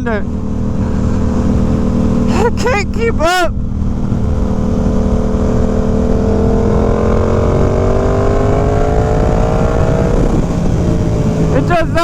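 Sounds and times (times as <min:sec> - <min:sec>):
motorcycle engine accelerating: 0:00.0 - 0:12.0
riding wind rush: 0:00.1 - 0:12.0.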